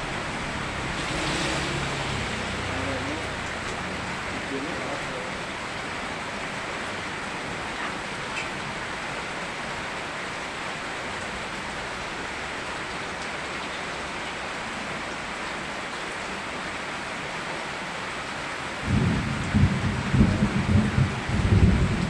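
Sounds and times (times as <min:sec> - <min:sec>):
steady rain: 0:00.0 - 0:22.0
low rumble of thunder: 0:18.8 - 0:22.0.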